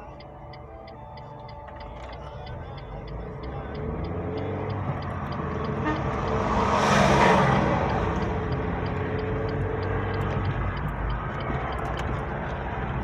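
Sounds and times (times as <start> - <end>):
indicator clicking: 0.0 - 6.6, 7.7 - 12.3
car running on road: 0.0 - 13.0
passing vehicle rushing by: 3.8 - 11.5.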